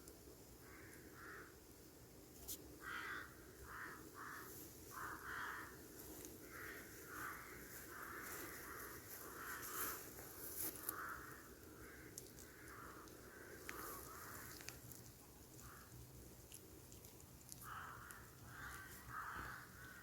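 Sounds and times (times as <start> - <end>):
crow cawing: 0.6 - 1.6, 2.8 - 14.7, 15.6 - 16.0, 17.6 - 20.0.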